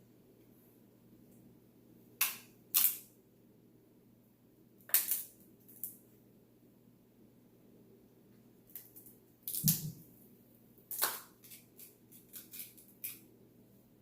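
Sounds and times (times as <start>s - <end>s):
crab shells cracking: 4.9s - 5.9s, 10.9s - 13.2s.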